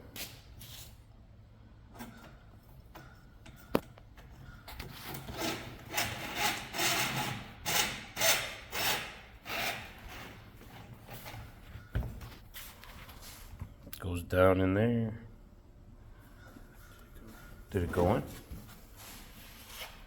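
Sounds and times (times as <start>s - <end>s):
cable rasping in metal tube: 4.8s - 10.4s.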